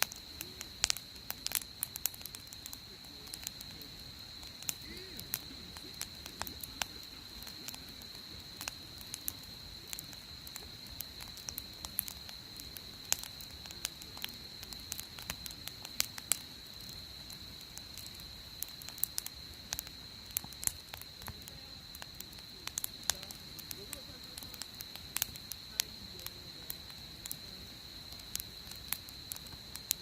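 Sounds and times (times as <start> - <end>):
campfire crackling: 0.0 - 30.0.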